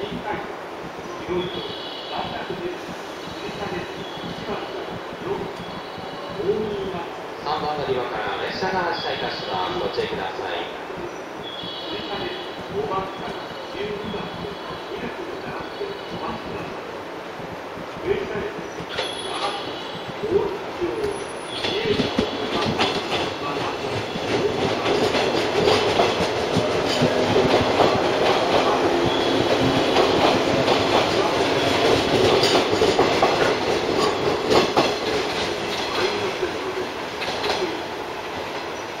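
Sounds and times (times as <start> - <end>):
electric train passing: 0.0 - 39.0
wheels clacking over rail joints: 17.4 - 39.0.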